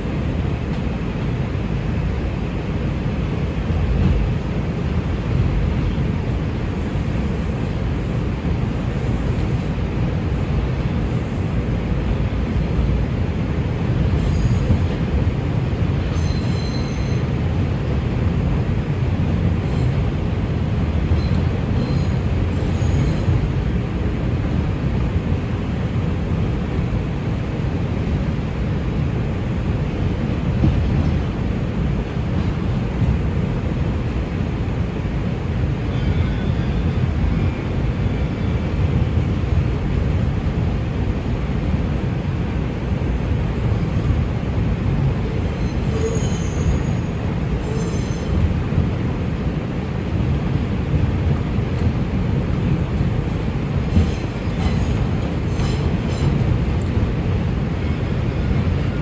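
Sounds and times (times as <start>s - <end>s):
train wheels rumbling on track: 0.0s - 59.0s
faint high wheel squeals: 14.2s - 15.0s, 16.1s - 17.4s, 21.1s - 23.4s, 35.8s - 38.8s, 45.2s - 48.5s.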